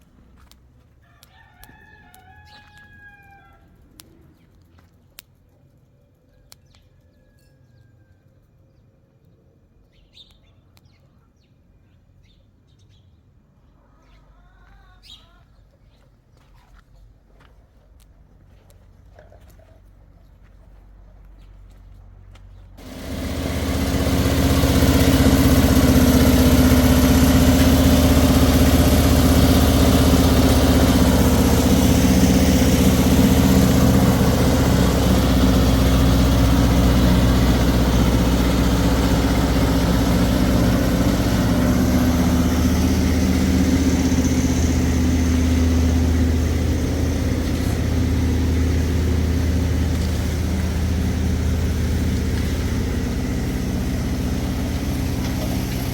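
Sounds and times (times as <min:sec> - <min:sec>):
motor engine running: 0:22.8 - 0:55.9.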